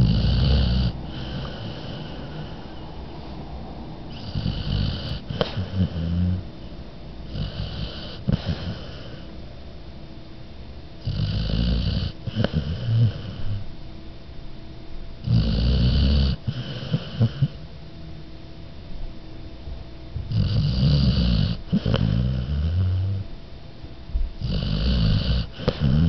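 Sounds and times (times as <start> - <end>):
dog snoring: 0.0 - 2.8, 4.1 - 6.5, 7.2 - 9.3, 11.0 - 13.7, 15.2 - 17.6, 20.2 - 23.3, 24.4 - 26.0
dog breathing: 0.0 - 3.4, 4.1 - 9.3, 11.0 - 13.7, 15.2 - 17.6, 20.2 - 23.3, 24.4 - 26.0.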